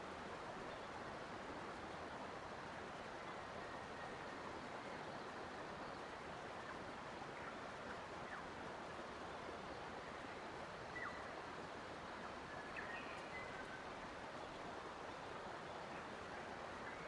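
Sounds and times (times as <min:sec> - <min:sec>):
flowing water rushing: 0:00.0 - 0:17.0
faint bird chirps: 0:09.7 - 0:11.4, 0:12.1 - 0:17.0.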